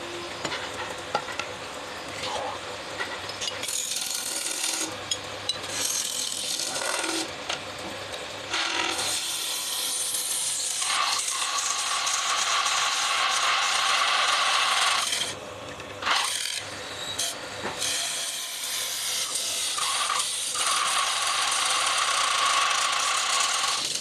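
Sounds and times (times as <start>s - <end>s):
tool scraping and cutting wood: 2.3s - 7.3s.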